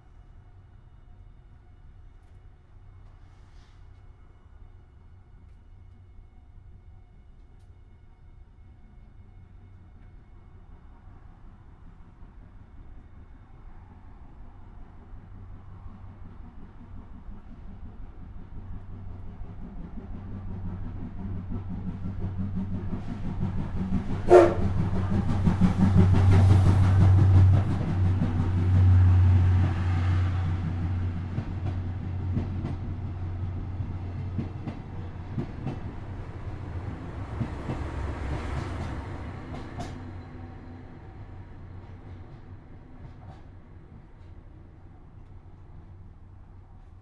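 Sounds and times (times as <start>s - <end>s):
train rumble and wheel clatter: 0.0s - 47.0s
train whistle blast: 24.3s - 24.8s.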